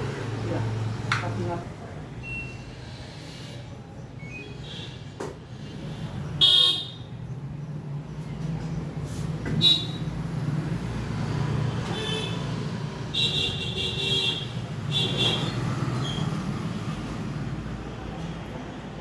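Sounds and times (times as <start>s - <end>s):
road traffic: 0.0s - 19.0s
vehicle horns honking: 6.4s - 7.1s, 9.6s - 10.1s, 11.9s - 12.4s, 13.1s - 15.6s.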